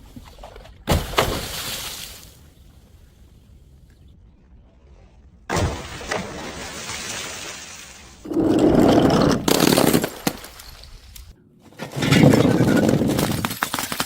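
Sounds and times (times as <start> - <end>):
glass bottles shattering: 9.2 - 10.8.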